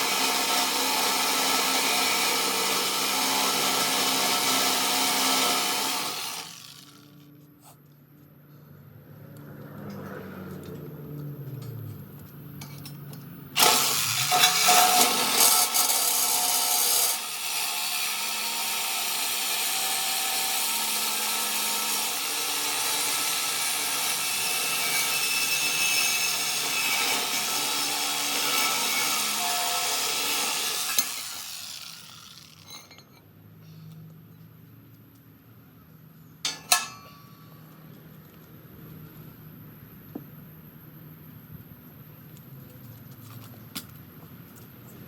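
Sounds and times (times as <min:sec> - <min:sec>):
power tool on steel frame: 0:00.0 - 0:07.5, 0:13.5 - 0:33.2, 0:36.4 - 0:37.3.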